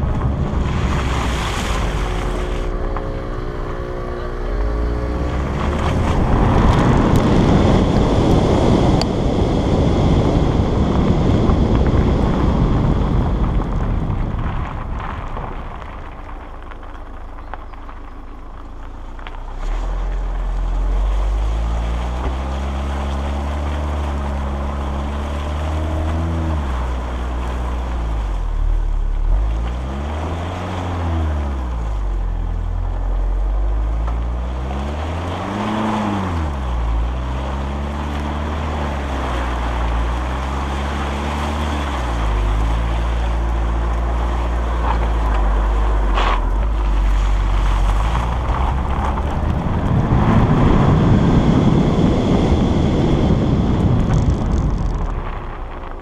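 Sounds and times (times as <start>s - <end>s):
wind buffeting microphone: 0.0s - 18.2s, 34.3s - 56.0s
car engine revving: 0.0s - 56.0s.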